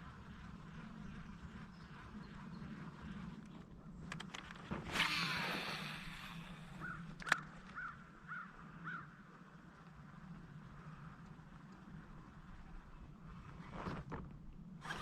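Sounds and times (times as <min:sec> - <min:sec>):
bird calling: 0:05.0 - 0:09.1
light clicks: 0:07.2 - 0:07.8.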